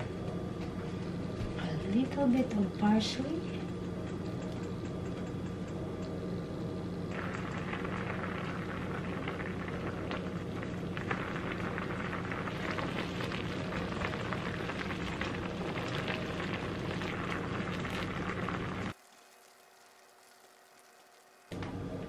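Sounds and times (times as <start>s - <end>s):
steady low hum: 0.0s - 22.0s
sauce bubbling: 7.0s - 21.6s.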